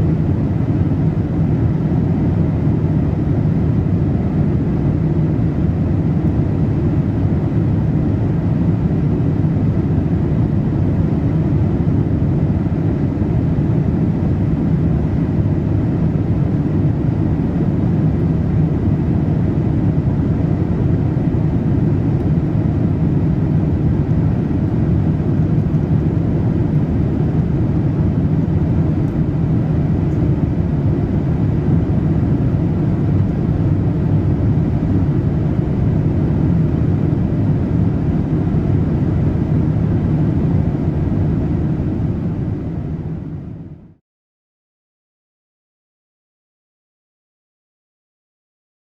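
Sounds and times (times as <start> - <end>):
airplane cabin rumble: 0.0 - 44.0.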